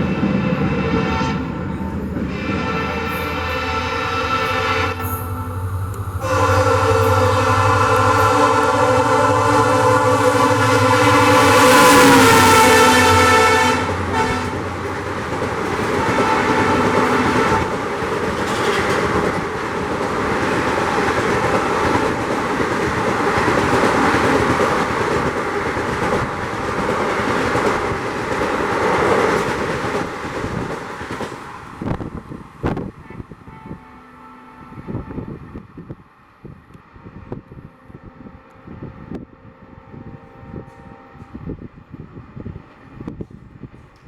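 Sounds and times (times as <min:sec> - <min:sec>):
locomotive horn blaring: 0:00.0 - 0:19.4, 0:33.0 - 0:35.6, 0:37.6 - 0:41.7
wheels clattering over rail joints: 0:14.0 - 0:31.5.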